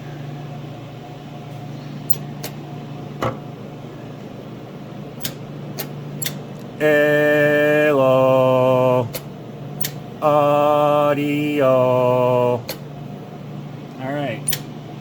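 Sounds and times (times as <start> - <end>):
electrical hum with hiss: 0.0 - 15.0
held pitched tone: 6.8 - 9.1
short sharp clicks: 9.1 - 10.0.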